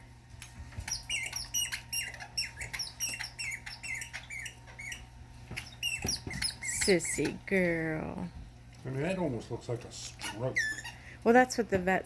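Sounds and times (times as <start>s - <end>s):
squeaky dog toy squeaking: 0.9s - 5.0s, 5.6s - 7.4s, 10.2s - 11.0s.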